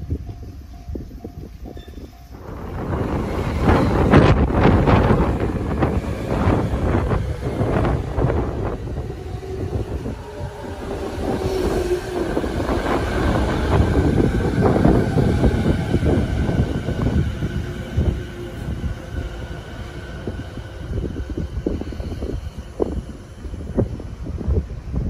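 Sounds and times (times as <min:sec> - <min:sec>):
train wheels rumbling over joints: 0:00.0 - 0:25.0.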